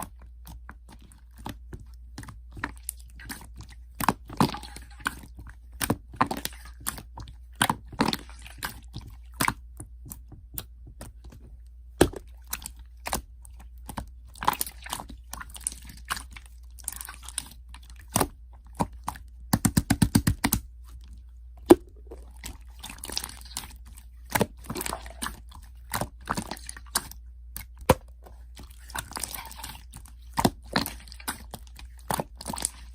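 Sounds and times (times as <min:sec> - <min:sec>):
slime squished by hand: 0:12.0 - 0:32.9
faint low hum: 0:20.4 - 0:32.9.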